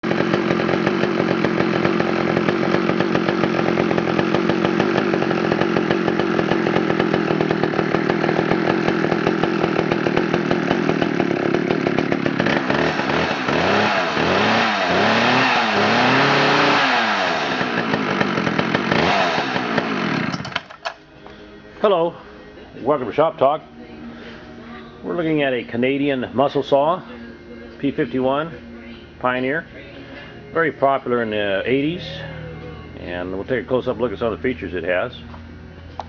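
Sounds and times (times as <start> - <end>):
chainsaw running and revving: 0.0 - 20.7.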